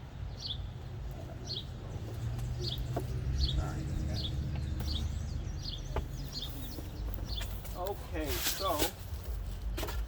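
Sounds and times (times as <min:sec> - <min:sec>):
bird chirping: 0:00.0 - 0:08.2.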